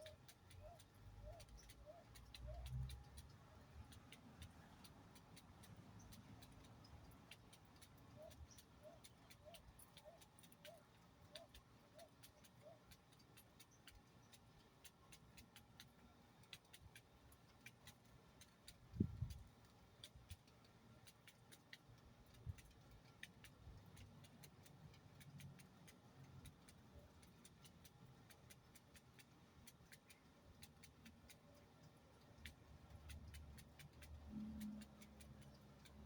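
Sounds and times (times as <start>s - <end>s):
light ticks and clicks: 0.0s - 36.0s.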